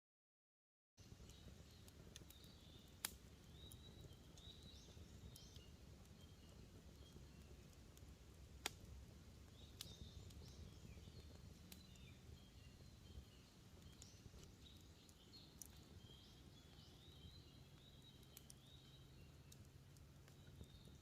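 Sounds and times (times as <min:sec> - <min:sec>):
faint campfire crackling: 0:01.0 - 0:21.0
small birds chirping: 0:01.0 - 0:21.0.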